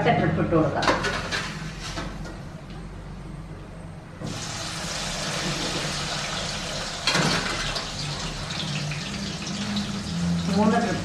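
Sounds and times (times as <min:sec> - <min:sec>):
meat sizzling in hot oil: 0:04.3 - 0:11.0.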